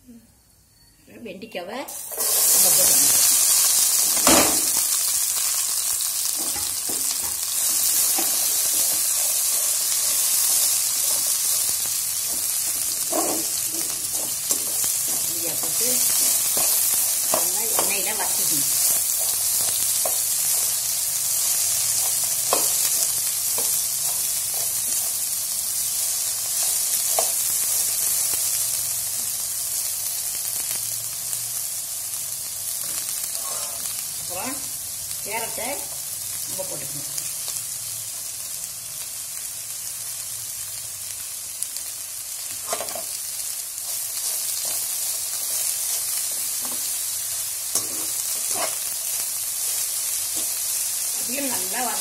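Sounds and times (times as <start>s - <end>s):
okra sizzling in oil: 1.9s - 52.0s
metal spoon scraping and clinking: 47.7s - 48.9s.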